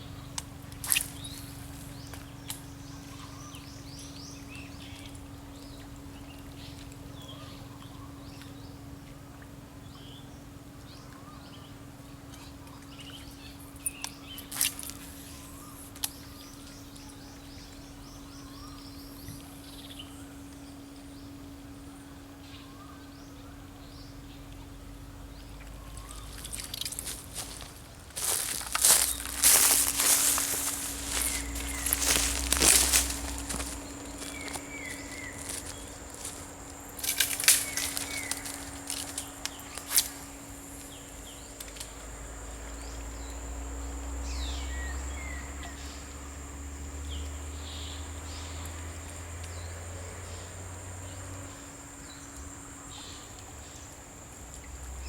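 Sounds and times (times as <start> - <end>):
birds chirping: 0.0 - 8.8, 9.9 - 42.1
steady low hum: 0.0 - 55.0
rustling: 26.3 - 40.4.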